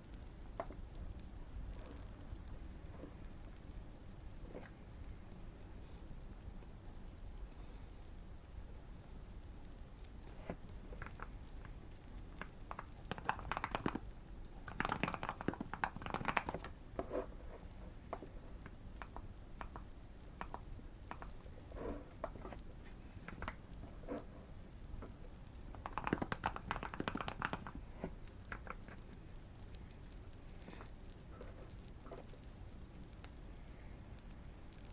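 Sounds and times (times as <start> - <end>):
fire crackling: 0.0 - 34.9
mechanical keyboard typing: 12.4 - 16.8, 25.7 - 27.8.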